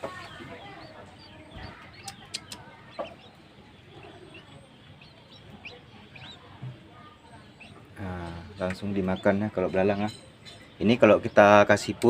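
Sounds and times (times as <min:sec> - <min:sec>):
young birds chirping: 0:00.0 - 0:12.0
sharp clicks: 0:01.8 - 0:03.2.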